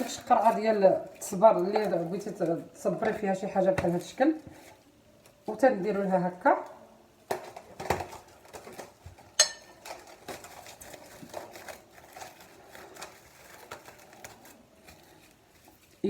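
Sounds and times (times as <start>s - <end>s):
cellophane crinkling: 0.0s - 16.0s
glass jar clink: 9.4s - 9.8s.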